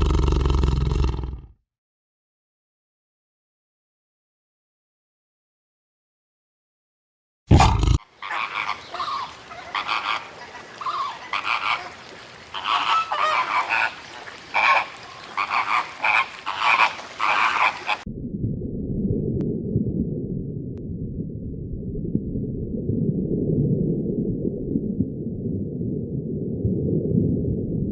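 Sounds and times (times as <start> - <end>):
animal honking calls: 7.5 - 18.0
steady low rumble: 18.1 - 27.9.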